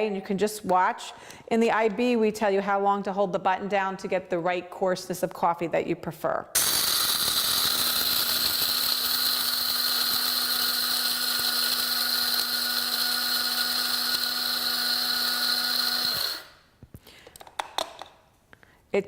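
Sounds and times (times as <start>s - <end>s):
coffee grinder whining: 6.6s - 16.7s.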